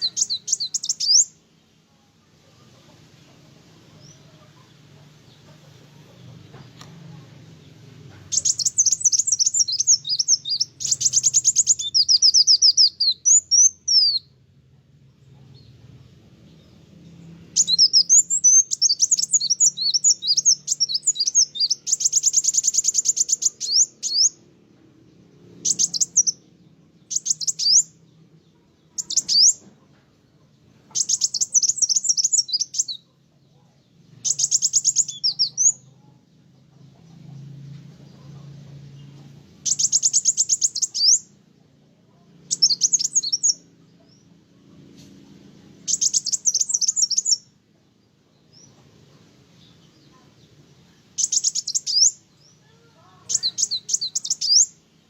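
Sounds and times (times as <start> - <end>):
sunbird twittering song: 0.0 - 1.5, 7.6 - 14.4, 15.1 - 24.4, 25.1 - 29.8, 30.9 - 33.1, 33.9 - 36.2, 38.8 - 41.4, 42.4 - 48.8, 49.6 - 55.0.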